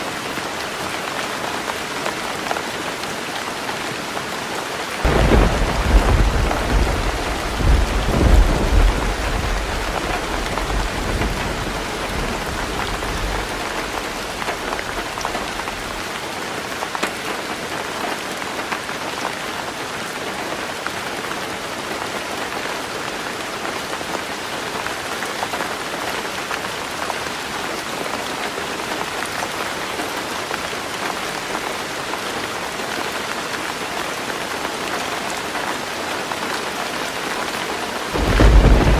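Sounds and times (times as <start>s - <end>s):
heavy rain on a roof: 0.0s - 38.9s
thunder clap rumbling: 5.0s - 16.1s, 38.2s - 38.9s.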